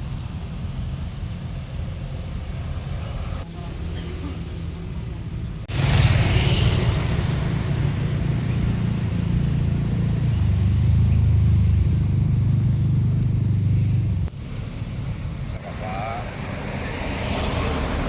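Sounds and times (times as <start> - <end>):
off-road vehicle engine running: 4.8 - 18.0.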